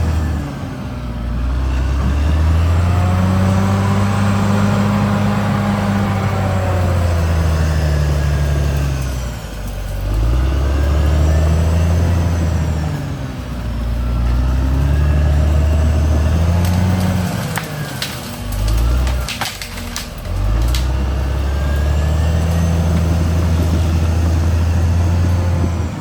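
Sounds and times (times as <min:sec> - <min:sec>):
bulldozer diesel engine working: 0:00.0 - 0:26.0
sharp cracks: 0:16.5 - 0:21.2.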